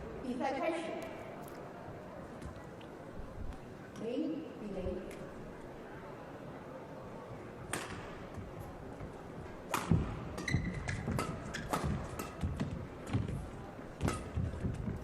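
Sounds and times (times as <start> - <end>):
racket hitting shuttlecock: 7.7 - 8.2, 9.7 - 13.4, 14.0 - 15.0
shoes squeaking on court: 9.8 - 13.4.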